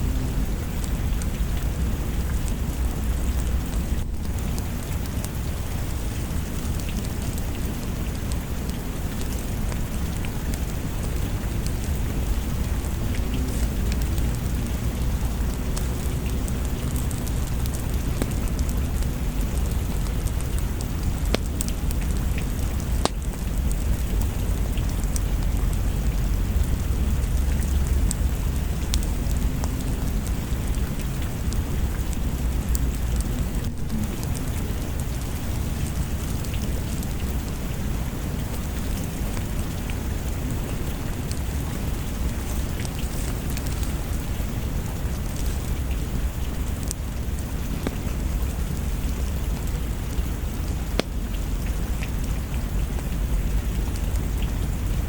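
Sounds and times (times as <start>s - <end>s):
steady rain: 0.0s - 55.0s
low rumble of thunder: 7.6s - 55.0s.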